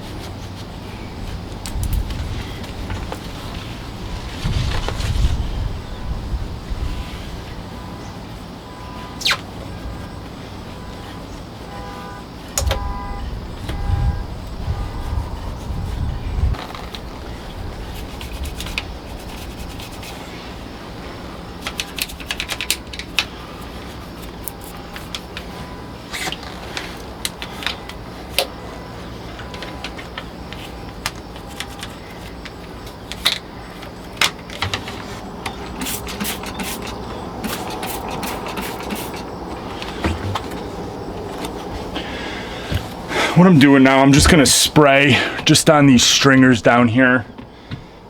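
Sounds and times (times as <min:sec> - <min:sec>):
rag rubbing engine surfaces: 0:34.7 - 0:45.8.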